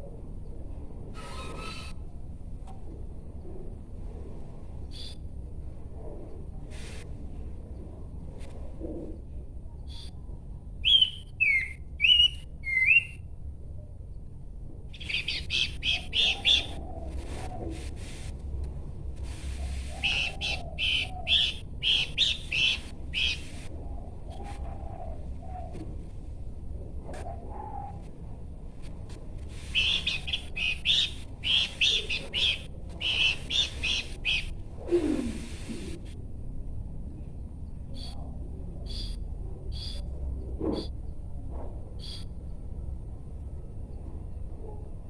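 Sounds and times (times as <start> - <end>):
low background hum: 0.0 - 45.0
bird whistling notes: 10.8 - 13.2, 19.9 - 23.4, 29.7 - 34.5
bird chattering: 15.0 - 16.9, 19.9 - 23.5, 29.7 - 34.5.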